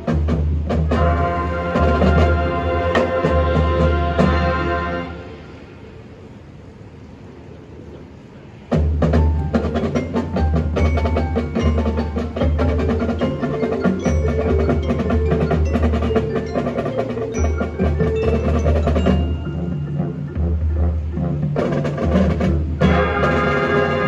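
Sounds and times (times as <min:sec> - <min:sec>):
marching band playing: 0:00.0 - 0:05.6, 0:08.7 - 0:24.0
drum strikes: 0:08.7 - 0:23.7
mallet percussion: 0:08.8 - 0:24.0.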